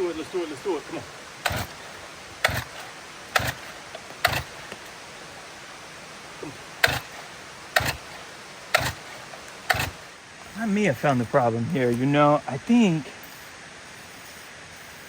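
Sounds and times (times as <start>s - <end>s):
chainsaw recoil starter pulls: 0.0s - 5.4s, 6.4s - 10.7s.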